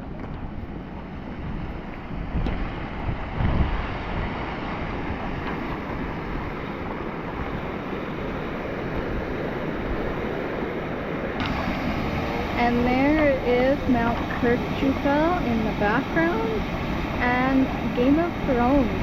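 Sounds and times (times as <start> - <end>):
wind buffeting microphone: 0.0 - 19.0
waterfall rushing: 11.4 - 19.0.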